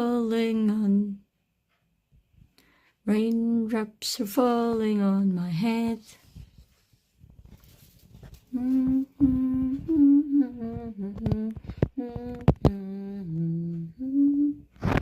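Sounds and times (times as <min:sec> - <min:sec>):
woman humming: 0:08.5 - 0:14.7.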